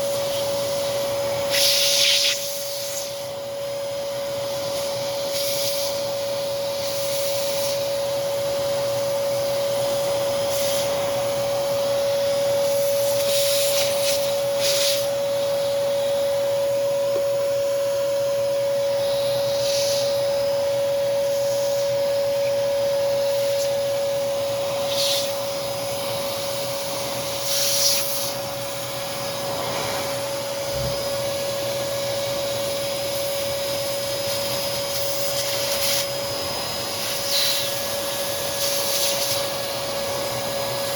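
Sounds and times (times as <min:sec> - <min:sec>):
vacuum cleaner running: 0:00.0 - 0:40.9
short sharp hisses: 0:19.6 - 0:20.1, 0:29.2 - 0:31.0.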